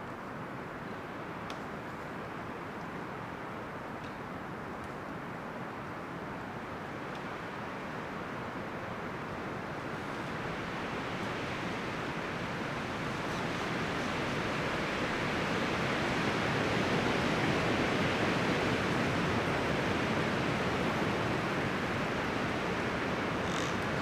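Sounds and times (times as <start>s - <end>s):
wind rustling tree leaves: 6.1s - 24.0s.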